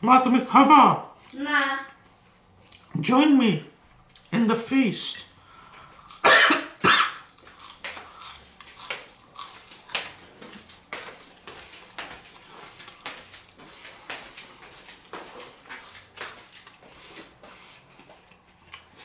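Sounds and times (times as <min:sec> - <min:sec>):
person chewing: 0:02.6 - 0:03.0, 0:05.5 - 0:19.0.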